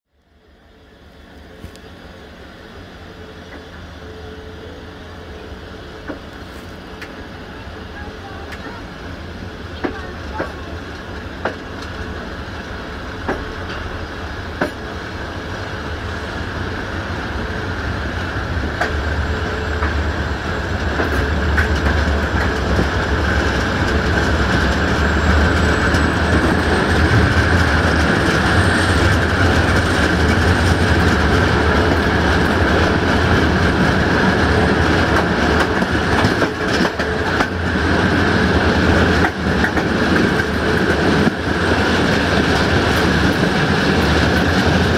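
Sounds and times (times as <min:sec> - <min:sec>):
train wheels clickety-clack: 0:06.0 - 0:07.2, 0:08.2 - 0:08.8, 0:09.8 - 0:15.0, 0:18.1 - 0:44.9.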